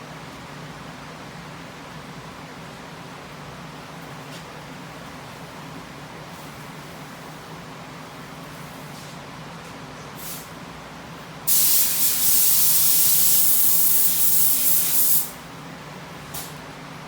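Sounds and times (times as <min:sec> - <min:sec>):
spray gun spraying: 0:11.5 - 0:15.4.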